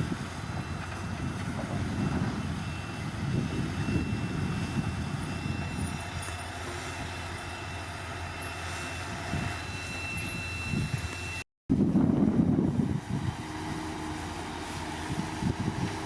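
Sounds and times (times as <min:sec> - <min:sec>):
bulldozer diesel engine running: 0:00.0 - 0:16.0
thin high whine: 0:02.0 - 0:11.4.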